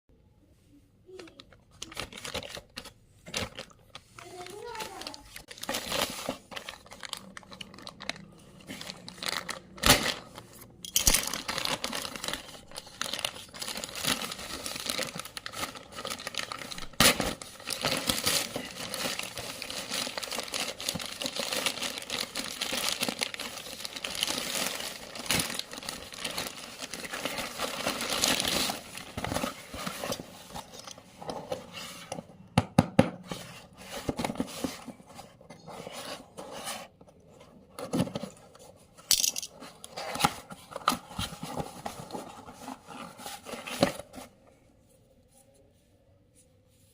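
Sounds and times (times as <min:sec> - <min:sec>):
packaging crinkling and tearing: 0:01.2 - 0:30.9.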